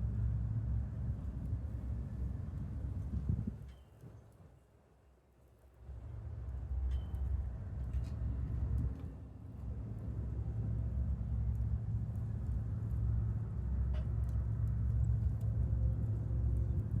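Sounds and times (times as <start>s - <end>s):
distant train rumble: 5.8s - 17.0s.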